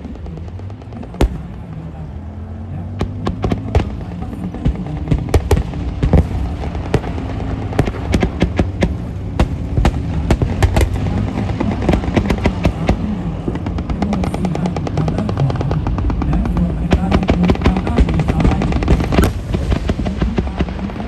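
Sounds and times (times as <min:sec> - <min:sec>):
low drone: 0:00.0 - 0:21.0
gunfire volleys: 0:03.0 - 0:15.2, 0:17.1 - 0:21.0.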